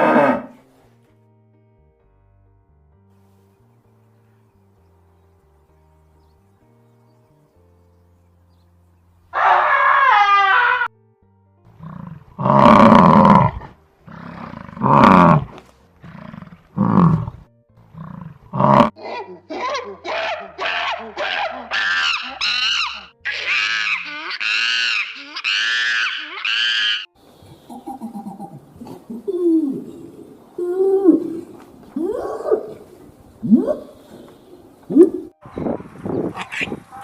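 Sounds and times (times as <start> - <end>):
animal calling loudly: 0.0 - 0.6, 9.3 - 10.9, 18.0 - 34.1, 36.3 - 37.0
faint background music: 0.0 - 37.0.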